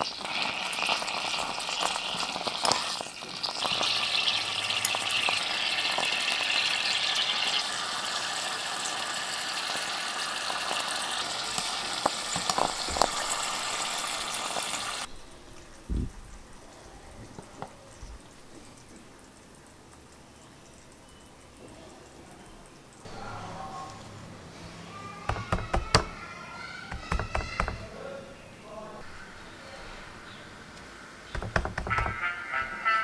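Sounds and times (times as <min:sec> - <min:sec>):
food sizzling in pan: 0:00.0 - 0:15.8.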